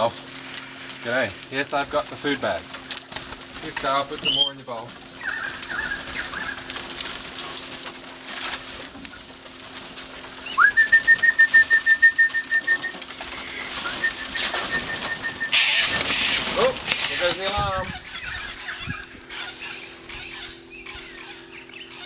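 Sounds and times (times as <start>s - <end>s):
wings flapping: 0.0s - 20.5s
parrots calling: 2.2s - 7.6s, 12.6s - 22.0s
bird piping alarm call: 4.2s - 4.6s, 5.2s - 6.8s, 12.8s - 22.0s.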